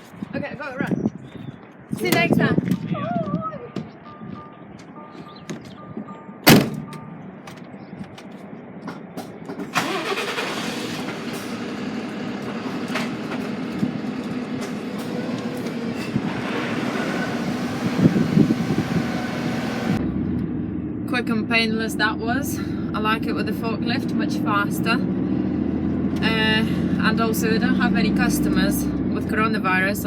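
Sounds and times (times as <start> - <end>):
sharp bang: 6.4 - 6.9
truck diesel engine starting: 9.6 - 21.4.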